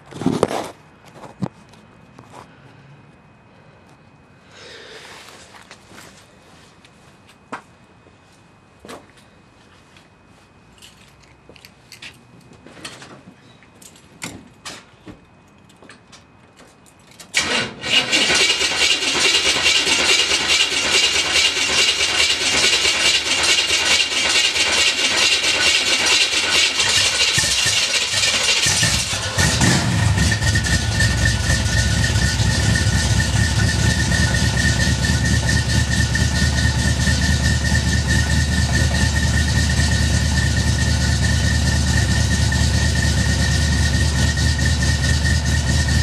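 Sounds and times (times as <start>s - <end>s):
car engine starting and running: 17.4s - 46.0s.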